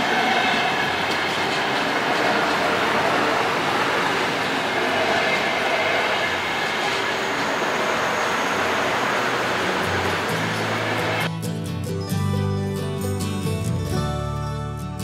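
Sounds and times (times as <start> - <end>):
train wheels on rails: 0.0 - 11.3
music: 9.6 - 15.0.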